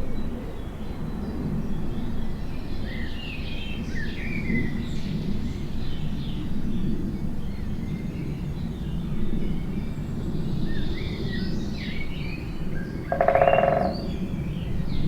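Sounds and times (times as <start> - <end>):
songbirds chirping and singing: 13.1 - 14.1.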